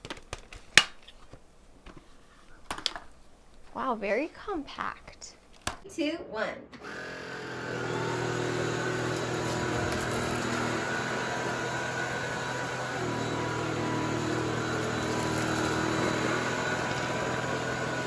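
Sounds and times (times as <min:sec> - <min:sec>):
vacuum cleaner motor whirring: 0:06.8 - 0:18.0.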